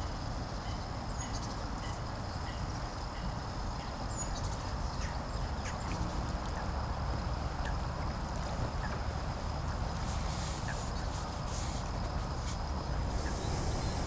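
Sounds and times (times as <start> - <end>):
steady low rumble: 12.6 - 14.0
birds chirping: 12.9 - 14.0.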